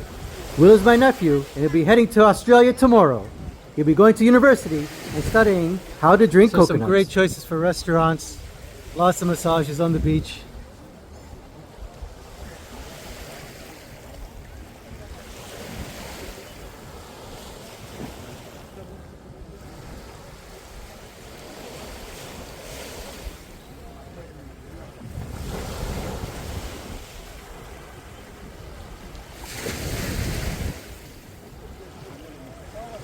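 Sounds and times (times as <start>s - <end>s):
surf washing onto sandy beach: 0.0s - 33.0s
wind rumbling on microphone: 3.2s - 3.8s, 9.8s - 13.3s, 24.7s - 33.0s.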